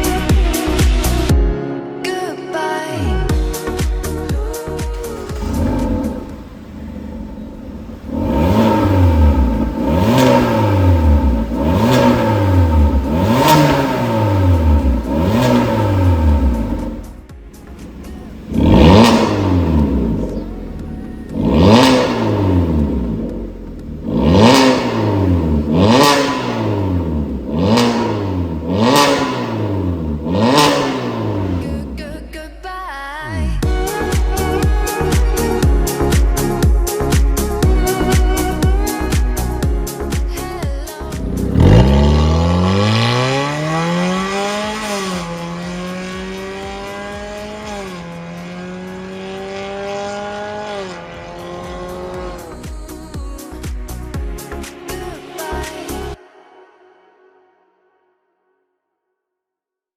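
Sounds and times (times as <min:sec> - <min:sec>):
car engine revving: 0:04.8 - 0:32.4, 0:40.4 - 0:53.1.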